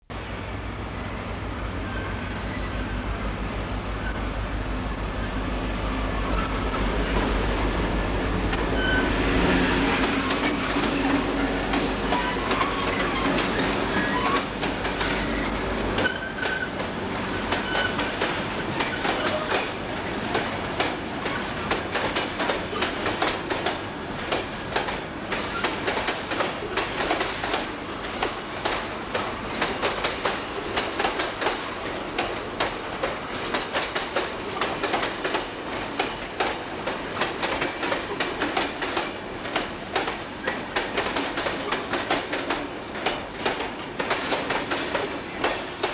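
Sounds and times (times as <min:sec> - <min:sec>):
train low drone: 0:00.1 - 0:45.9
wheel squeals: 0:08.6 - 0:21.8
wheels clattering over rail joints: 0:17.5 - 0:45.9.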